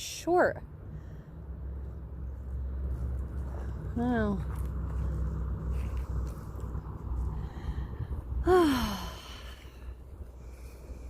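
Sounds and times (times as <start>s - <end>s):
low steady background rumble: 0.0s - 11.0s
person sighing: 8.4s - 9.6s.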